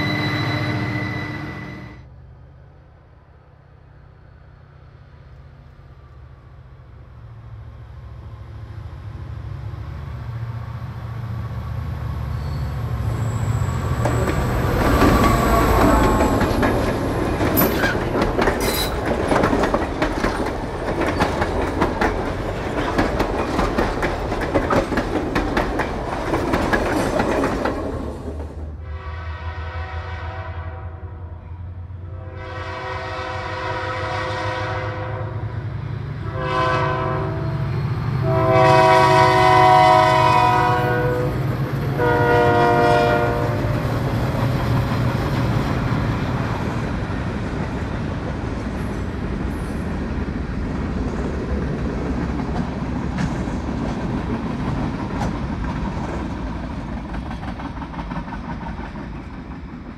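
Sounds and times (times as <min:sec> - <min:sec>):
wheel squeal: 0:00.0 - 0:02.0, 0:17.5 - 0:19.0
diesel locomotive rumble: 0:05.4 - 0:30.4
wheels clacking over rail joints: 0:13.8 - 0:28.6
locomotive air horn blasts: 0:28.8 - 0:31.4, 0:32.0 - 0:35.4, 0:36.2 - 0:43.8.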